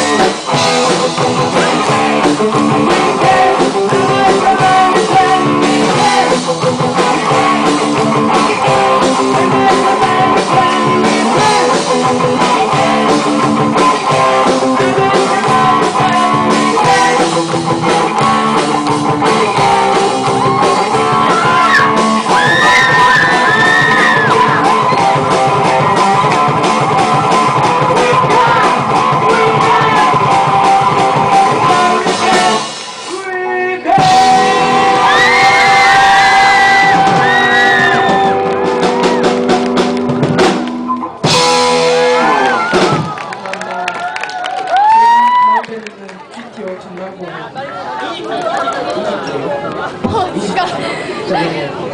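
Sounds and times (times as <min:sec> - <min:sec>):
rock band playing: 0:00.0 - 0:33.2, 0:33.9 - 0:43.7
person singing: 0:00.0 - 0:38.5.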